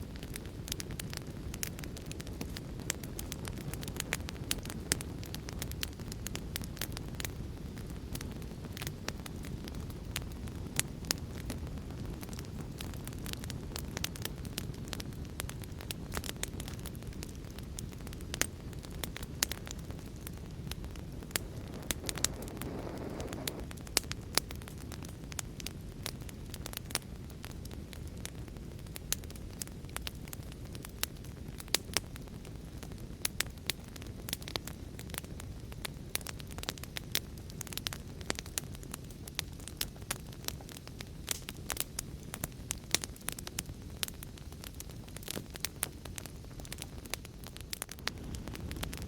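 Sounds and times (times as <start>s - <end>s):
wood fire crackling: 0.0s - 49.0s.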